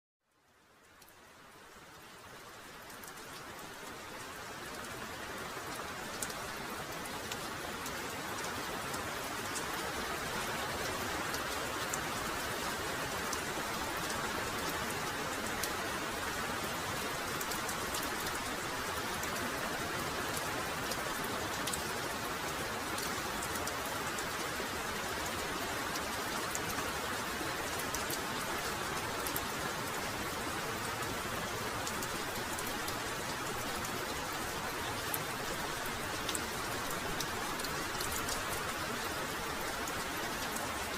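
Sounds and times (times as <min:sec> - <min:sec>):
raindrops ticking close by: 0:00.2 - 0:40.9
heavy rain falling: 0:00.4 - 0:40.9.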